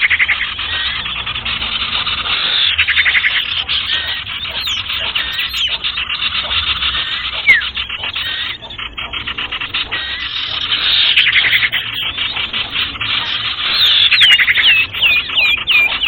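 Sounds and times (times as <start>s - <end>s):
birds chirping and trilling: 0.0s - 16.0s
downward-sliding bird call: 0.5s - 16.0s.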